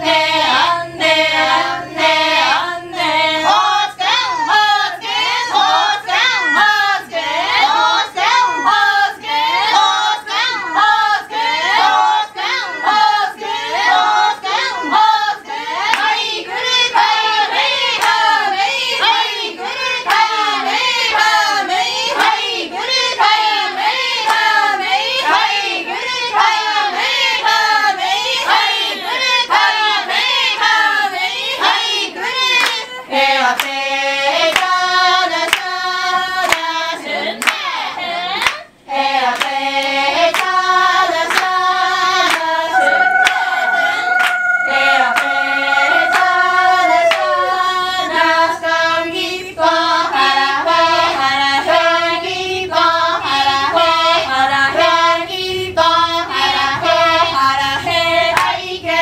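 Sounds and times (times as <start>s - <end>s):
group singing in chorus: 0.0s - 59.0s
rhythmic hand clapping: 15.8s - 16.3s, 16.9s - 19.3s, 20.0s - 21.5s, 22.1s - 22.5s, 24.0s - 25.5s, 32.5s - 33.8s, 34.4s - 37.7s, 38.3s - 47.6s.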